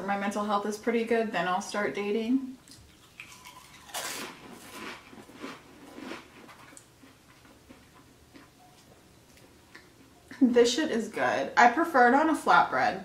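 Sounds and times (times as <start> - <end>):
person chewing food: 2.6 - 10.3.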